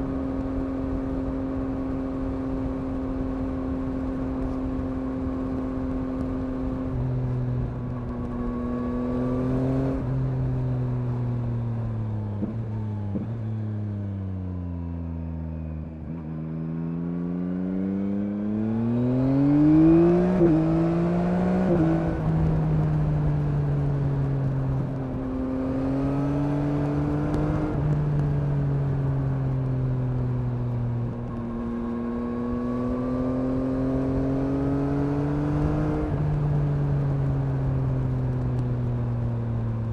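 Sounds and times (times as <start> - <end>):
motorcycle engine revving: 0.0 - 11.4, 15.6 - 38.4.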